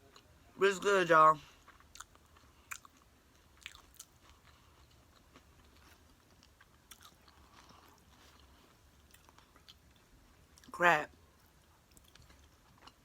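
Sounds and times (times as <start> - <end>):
person chewing: 1.5 - 10.7, 11.8 - 13.0.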